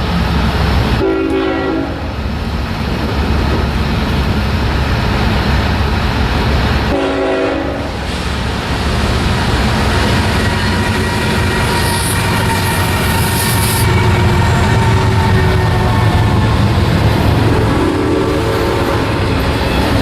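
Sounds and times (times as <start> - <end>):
moving train rumble: 0.0 - 20.0
locomotive air horn blasts: 1.0 - 2.0, 6.9 - 8.0, 10.7 - 16.5, 17.6 - 19.3.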